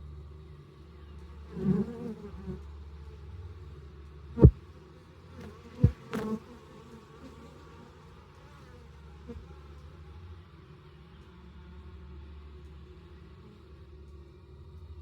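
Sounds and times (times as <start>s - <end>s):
bees buzzing at a hive: 1.5s - 2.6s, 4.4s - 4.6s, 5.4s - 8.8s
bee flying past buzzing: 4.4s - 4.6s, 5.4s - 7.8s.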